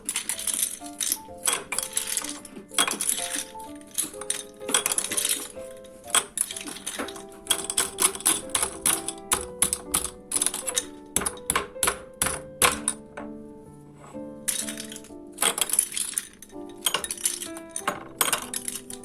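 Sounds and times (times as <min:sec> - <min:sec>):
soft background music: 0:00.0 - 0:19.0
utensils clinking and tapping: 0:00.0 - 0:19.0.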